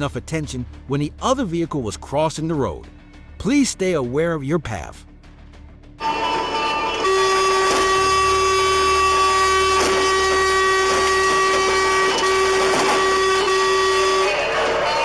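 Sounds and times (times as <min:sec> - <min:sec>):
vehicle horn blast: 0:06.0 - 0:15.0.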